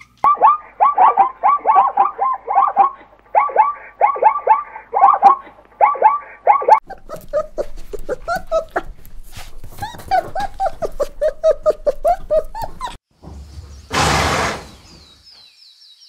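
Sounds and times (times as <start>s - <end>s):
dog barking: 0.2s - 6.8s.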